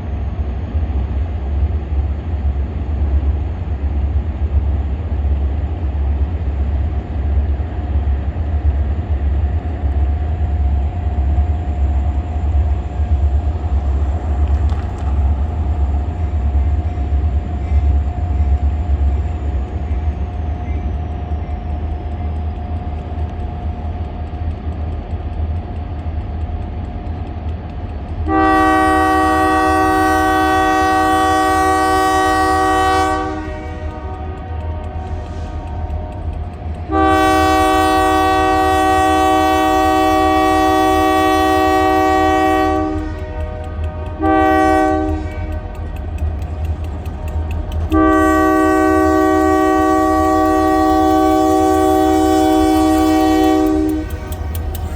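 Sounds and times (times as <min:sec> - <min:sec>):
diesel locomotives rumbling: 0:00.0 - 0:54.9
locomotive horn blast: 0:28.3 - 0:54.9.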